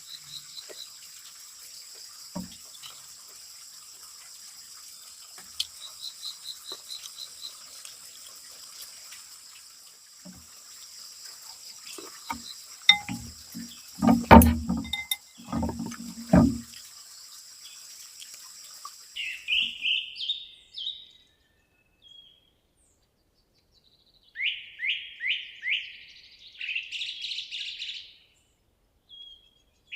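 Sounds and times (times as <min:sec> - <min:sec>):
steady high-pitched hiss: 0:00.0 - 0:20.0
low thumps: 0:12.9 - 0:16.7.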